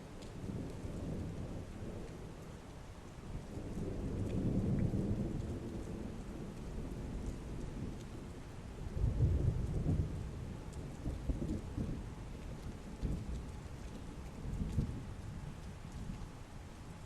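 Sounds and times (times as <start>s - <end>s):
heavy rain falling: 0.0s - 17.0s
thunder rumbling: 3.3s - 16.2s.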